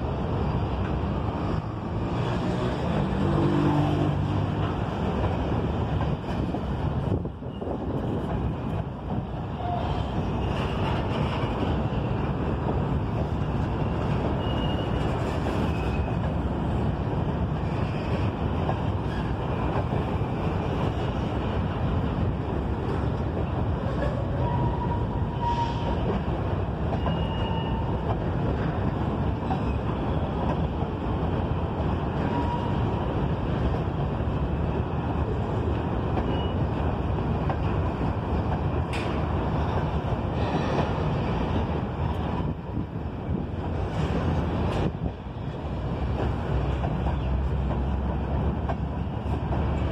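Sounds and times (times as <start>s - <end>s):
freight train wheels rumbling: 0.0s - 49.9s
high wheel squeals: 14.3s - 16.2s, 27.0s - 28.0s.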